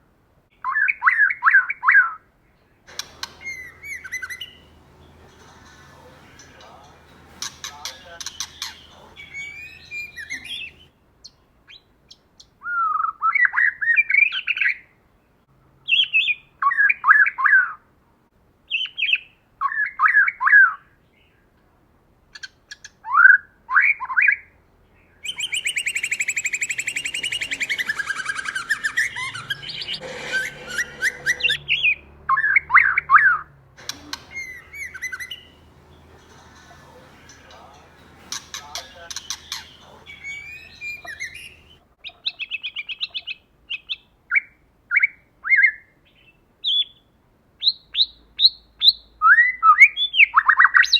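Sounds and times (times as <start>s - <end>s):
bird buzzy chattering run: 2.9s - 10.9s, 25.3s - 31.6s, 33.8s - 41.8s
bird whistled phrases: 2.9s - 10.9s, 25.3s - 31.6s, 33.8s - 41.8s.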